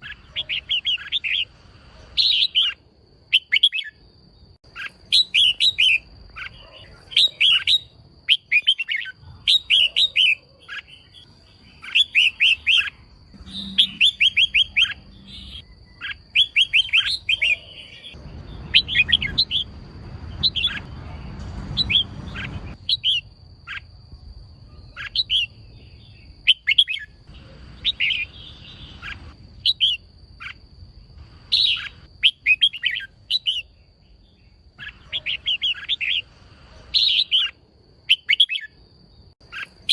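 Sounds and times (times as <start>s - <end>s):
bulbul chattering calls: 0.0s - 1.5s, 4.7s - 19.7s, 24.7s - 30.6s, 31.5s - 33.7s, 34.8s - 36.2s, 37.0s - 38.7s, 39.4s - 39.9s.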